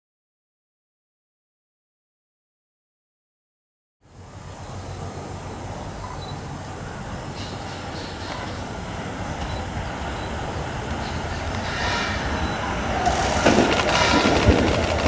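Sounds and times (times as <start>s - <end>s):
wheels clattering on rails: 4.6s - 15.0s
electric train motor whine: 8.7s - 15.0s.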